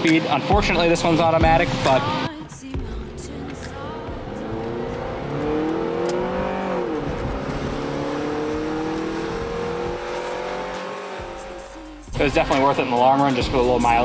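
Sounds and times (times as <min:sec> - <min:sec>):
car engine accelerating: 0:02.8 - 0:13.0.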